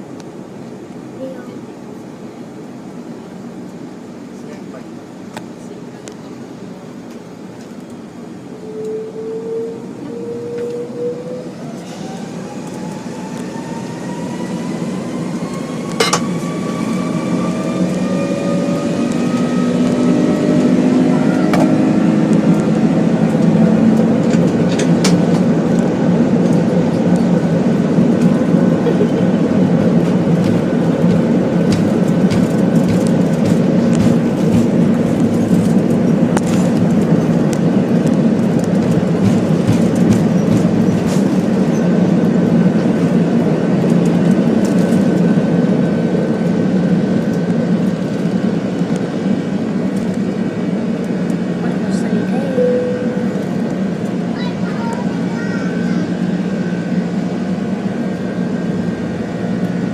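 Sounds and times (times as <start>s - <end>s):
jet engines spooling up: 7.2s - 59.9s
cabin rumble and rattle: 22.3s - 52.4s.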